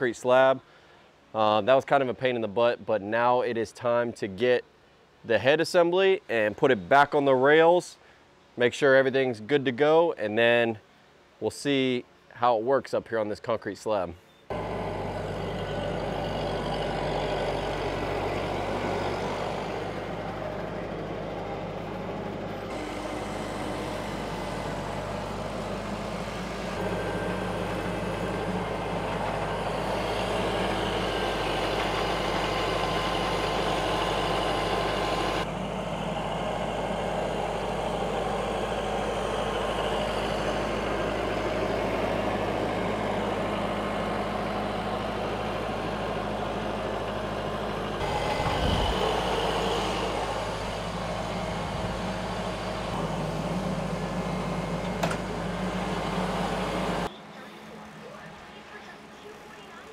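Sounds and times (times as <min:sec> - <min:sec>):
engine running with low hum: 0:14.5 - 0:59.9.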